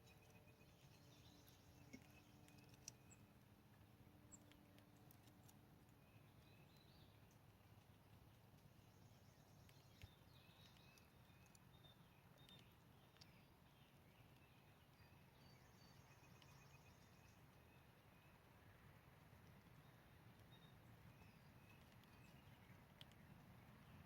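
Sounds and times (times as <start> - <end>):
soft clicks: 4.3 - 13.5, 21.6 - 23.6
distant bird chirps: 19.4 - 24.0.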